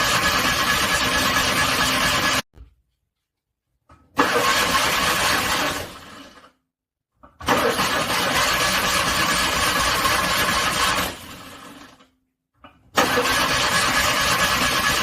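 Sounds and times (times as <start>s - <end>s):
car engine cranking by starter: 4.2s - 6.4s, 7.4s - 11.6s, 13.0s - 15.0s.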